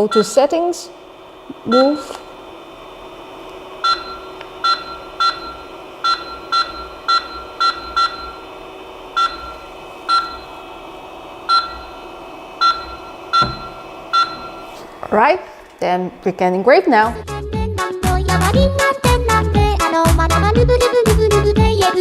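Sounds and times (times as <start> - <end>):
machine humming: 0.0 - 22.0
short control panel beeps: 3.8 - 8.4, 9.2 - 10.5, 12.6 - 14.7.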